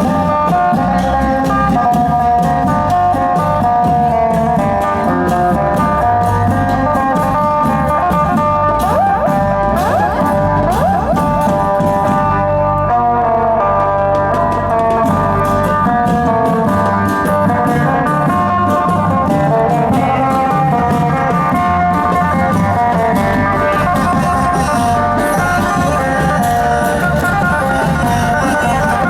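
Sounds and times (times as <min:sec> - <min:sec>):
drum and cymbal beat: 0:00.0 - 0:12.6, 0:14.2 - 0:29.0
plucked lute melody: 0:00.0 - 0:29.0.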